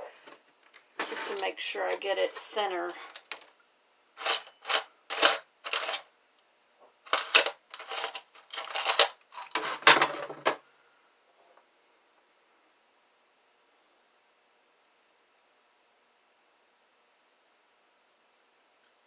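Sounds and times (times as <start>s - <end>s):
small metal tools clinking: 4.2s - 6.0s, 7.1s - 10.3s.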